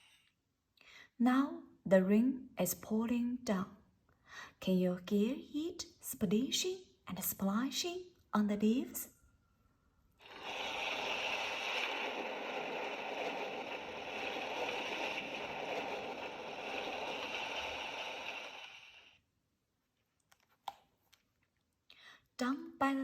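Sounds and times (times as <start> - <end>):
recorded rain on leaves: 10.3 - 19.1.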